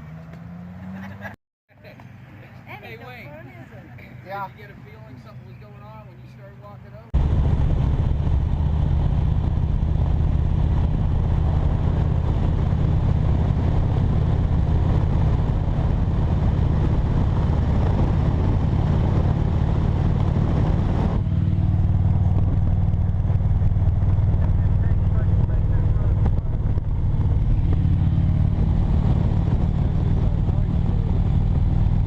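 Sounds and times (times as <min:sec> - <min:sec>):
road and wind noise: 0:00.0 - 0:32.0
motorcycle engine running: 0:07.2 - 0:32.0.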